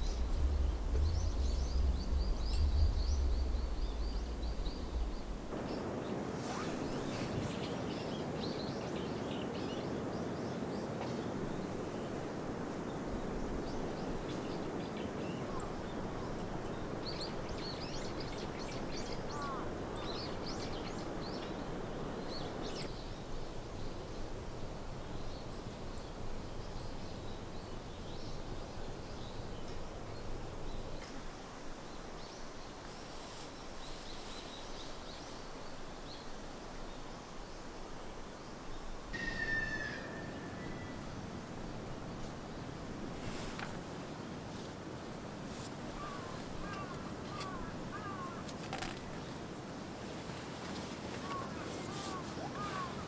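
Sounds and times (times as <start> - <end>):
steady rushing noise: 0.0 - 8.0
small birds chirping: 0.0 - 9.5.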